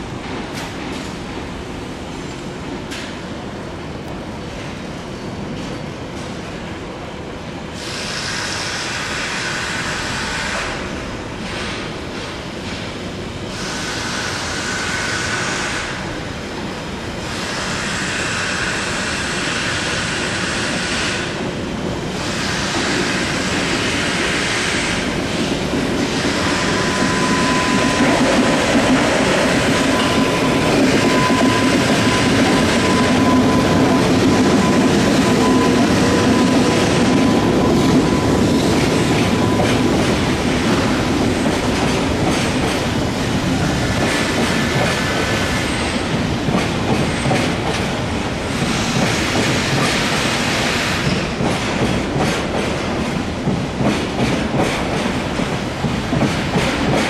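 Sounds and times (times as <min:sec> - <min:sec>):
train wheels clattering over rail joints: 0:22.4 - 0:57.0.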